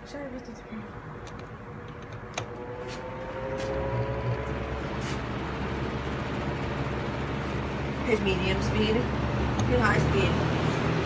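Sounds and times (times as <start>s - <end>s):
fan motor humming and whining: 0.0s - 11.0s
fan click: 1.2s - 5.2s, 9.5s - 9.9s.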